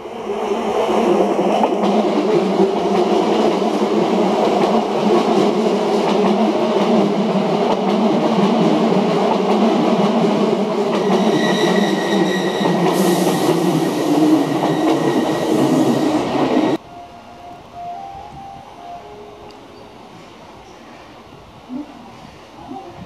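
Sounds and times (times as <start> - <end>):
train wheels rumbling on rails: 0.3 - 16.8
high-pitched brake squeal: 11.0 - 13.4, 14.4 - 16.2.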